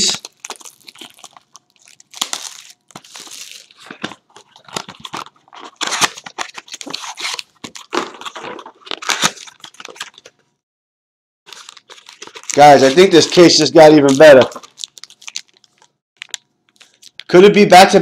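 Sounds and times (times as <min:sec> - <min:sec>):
wrapping rustling and crinkling: 0:00.0 - 0:10.4, 0:11.5 - 0:17.3
cardboard box tearing: 0:04.4 - 0:09.8.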